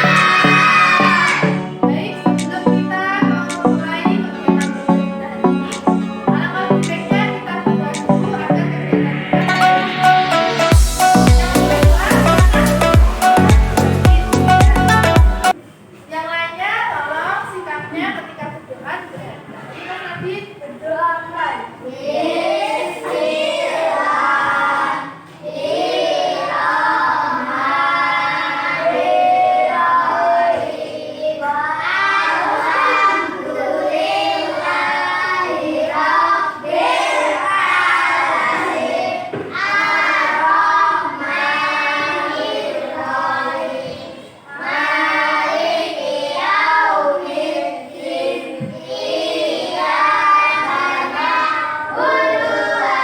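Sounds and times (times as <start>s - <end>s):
children chanting in unison: 0.0s - 4.7s, 21.8s - 53.0s.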